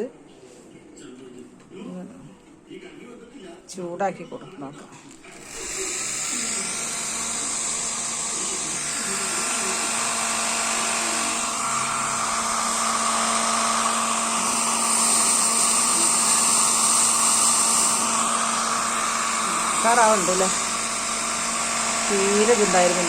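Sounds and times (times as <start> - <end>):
hot-air blower whirring: 4.6 - 23.0.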